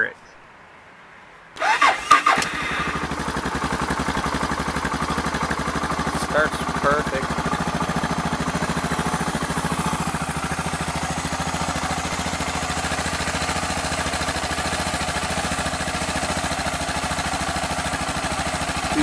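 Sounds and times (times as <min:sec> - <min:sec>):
motorcycle engine idling: 0:02.6 - 0:19.0.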